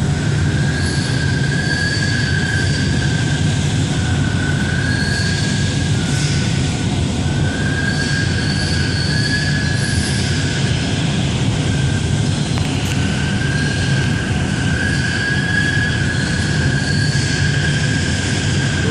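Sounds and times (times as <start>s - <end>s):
high machine whine: 0.0s - 18.9s
laser cutting machine hiss and rumble: 0.0s - 18.9s.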